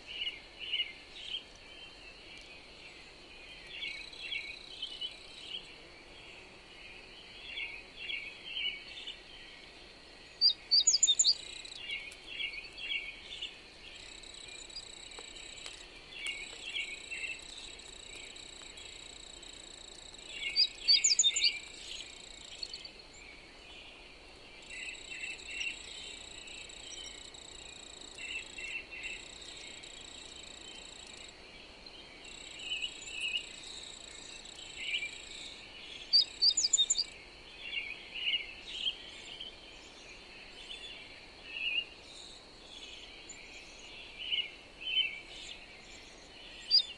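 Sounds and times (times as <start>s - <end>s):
insect drone: 0.0s - 46.9s
birds chirping and singing: 10.3s - 19.1s, 20.0s - 24.0s, 32.0s - 46.9s.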